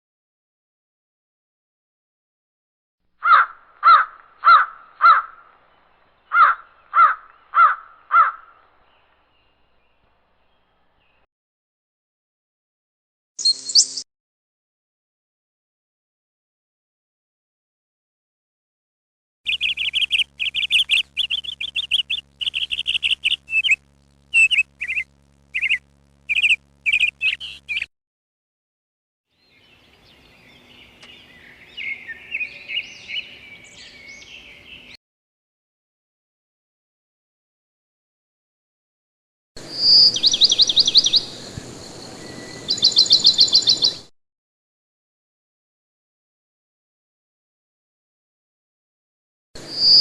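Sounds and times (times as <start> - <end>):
crow cawing: 3.2 - 5.5, 6.3 - 8.7
small bird chirping: 13.4 - 14.0, 19.5 - 27.9, 39.7 - 44.1, 49.7 - 50.0.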